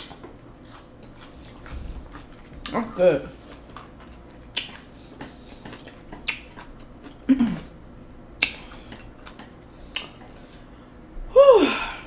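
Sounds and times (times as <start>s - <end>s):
wet chewing smacks: 0.0s - 7.3s, 8.4s - 11.0s
person humming mm: 11.3s - 12.0s.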